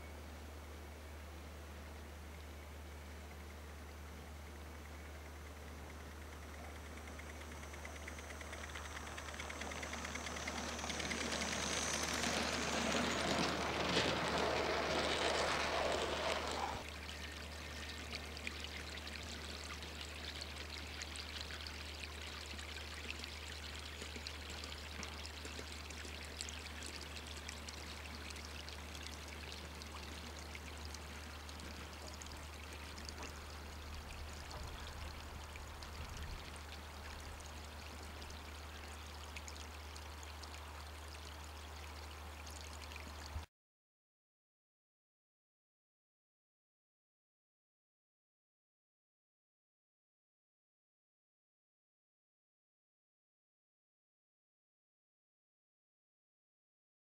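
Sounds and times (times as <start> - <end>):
low hum: 0.0 - 41.4
light crackle: 6.2 - 18.2
model locomotive hissing: 8.0 - 16.8.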